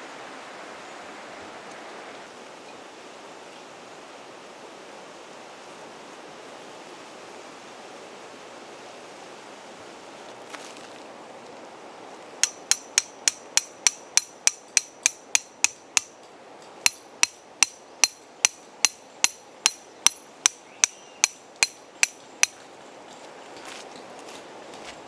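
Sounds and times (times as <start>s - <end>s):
hammer striking metal tent peg: 12.4s - 22.6s.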